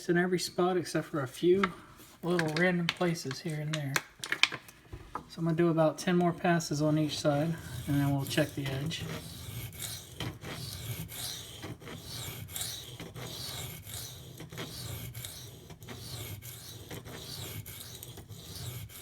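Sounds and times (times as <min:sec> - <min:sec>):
knife scraping on sharpening stone: 0:07.2 - 0:19.0.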